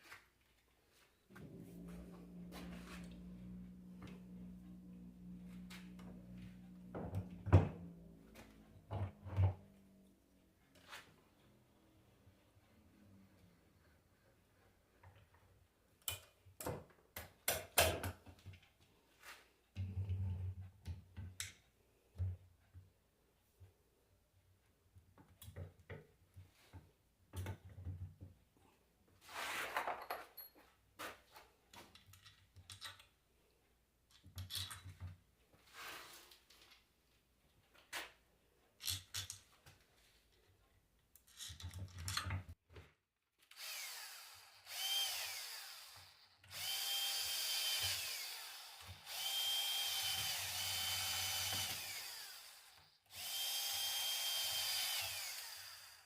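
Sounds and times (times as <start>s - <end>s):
power drill whining: 43.5s - 56.0s.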